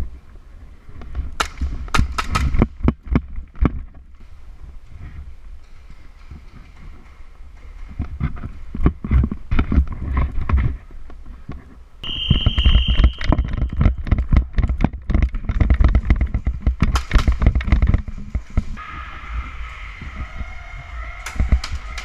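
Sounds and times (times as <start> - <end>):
steady high tone: 12.0 - 13.6.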